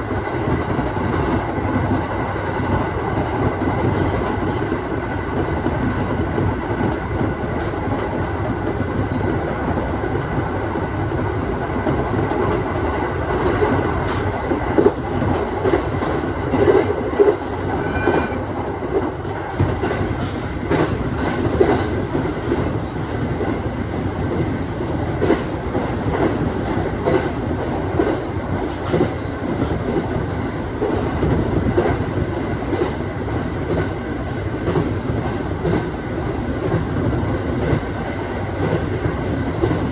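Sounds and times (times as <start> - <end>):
train running noise: 0.0 - 39.9
wheels clacking over rail joints: 13.3 - 23.6.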